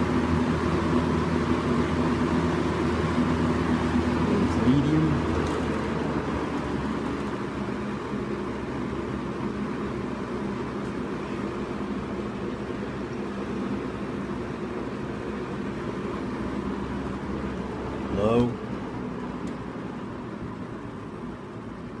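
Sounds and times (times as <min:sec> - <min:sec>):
box fan air rushing: 0:00.0 - 0:22.0
fan motor hum: 0:00.0 - 0:22.0.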